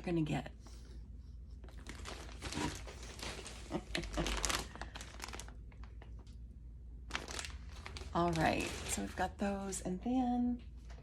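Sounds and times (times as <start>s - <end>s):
packaging crinkling and rustling: 1.6s - 6.4s, 7.0s - 9.8s.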